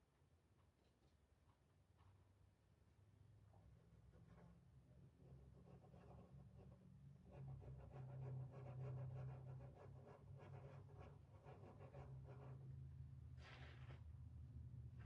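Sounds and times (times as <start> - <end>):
stencil brush scratching: 5.5 - 12.7.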